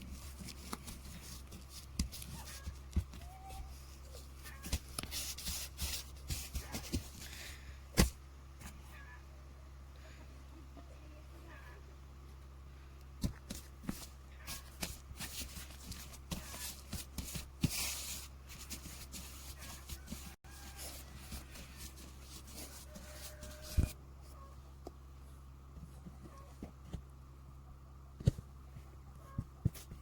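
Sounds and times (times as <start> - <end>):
rustling of handled objects: 0.0 - 8.8, 13.1 - 24.4
low steady hum: 0.0 - 30.0.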